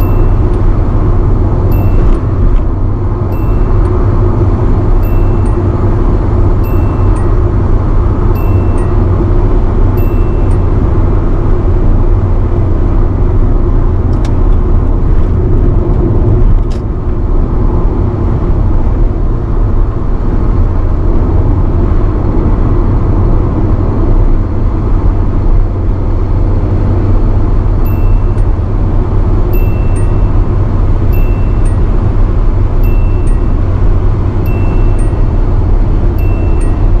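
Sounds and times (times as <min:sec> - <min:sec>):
faint warning chime: 0:00.0 - 0:02.6, 0:03.2 - 0:11.4, 0:27.8 - 0:28.6, 0:29.4 - 0:37.0
car engine and road noise: 0:00.0 - 0:37.0.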